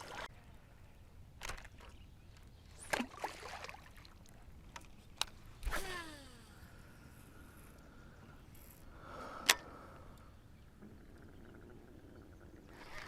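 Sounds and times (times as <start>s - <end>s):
fishing reel spinning whine: 5.6s - 9.6s, 12.6s - 13.0s.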